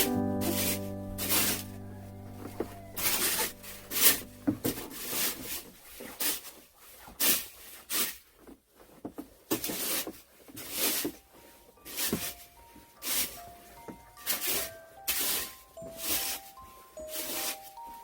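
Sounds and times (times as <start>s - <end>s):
background music: 0.0s - 5.4s, 10.6s - 18.0s
short scraping strokes: 0.0s - 8.2s.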